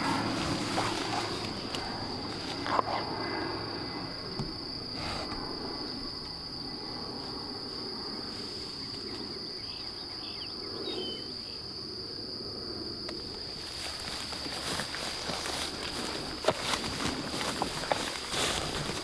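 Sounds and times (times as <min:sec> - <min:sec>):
rustling: 0:00.0 - 0:03.0, 0:13.6 - 0:19.0.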